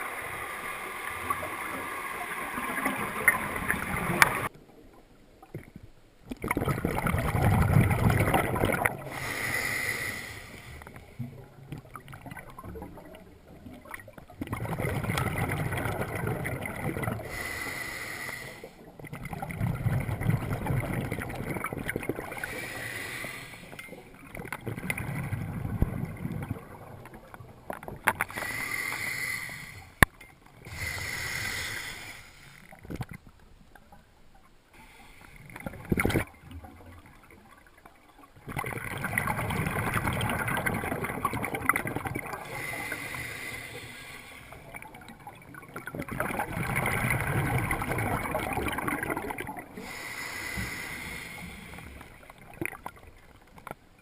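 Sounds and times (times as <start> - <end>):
water sloshing and lapping: 5.4 - 17.6, 18.5 - 28.6, 35.3 - 54.0.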